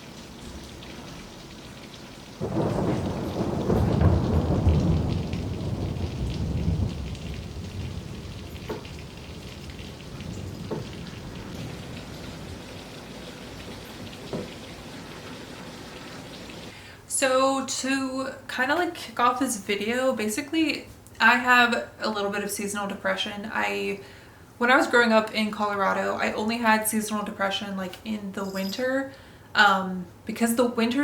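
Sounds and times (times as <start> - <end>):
raindrops tapping: 0.0 - 16.7
steady rain falling: 0.0 - 16.8
thunder rumbling: 2.2 - 16.2.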